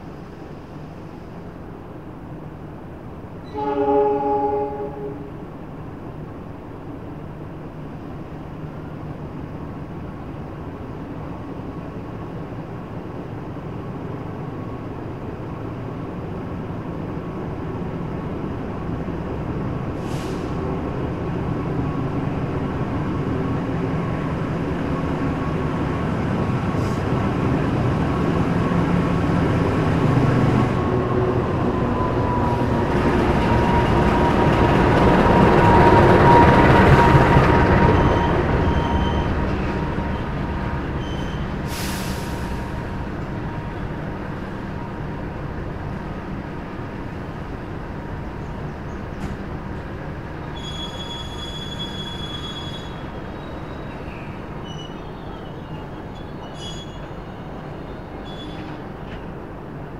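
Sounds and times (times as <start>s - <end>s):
train wheels rolling: 23.0s - 59.8s
short hisses: 41.7s - 42.8s.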